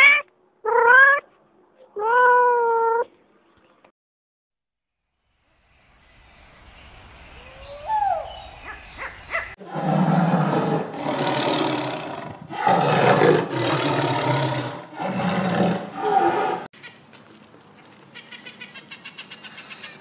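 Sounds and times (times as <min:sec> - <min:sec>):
tiger roaring: 0:09.6 - 0:16.7.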